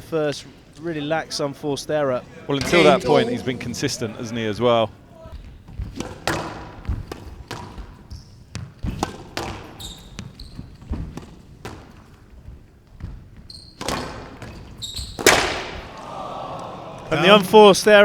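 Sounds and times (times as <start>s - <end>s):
shoes squeaking on court: 2.2s - 15.4s.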